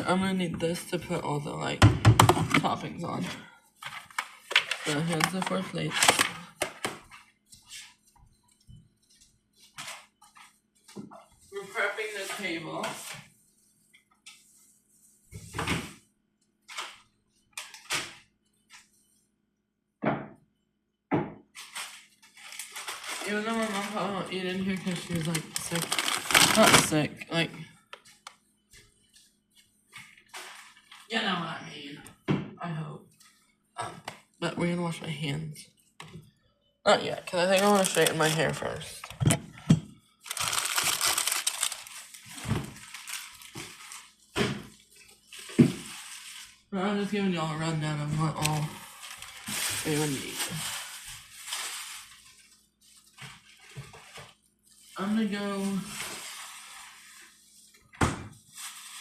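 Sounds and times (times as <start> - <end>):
packaging crinkling: 4.1 - 6.8, 21.6 - 27.1, 37.2 - 39.4, 40.2 - 44.3, 48.7 - 55.0, 58.5 - 59.0
objects knocking on table: 20.0 - 20.4, 21.1 - 21.4.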